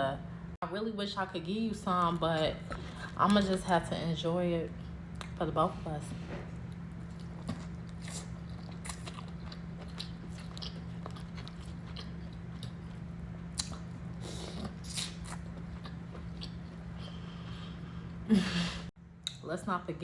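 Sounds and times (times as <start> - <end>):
steady low hum: 0.0 - 20.0
close chewing and biting: 6.4 - 17.8.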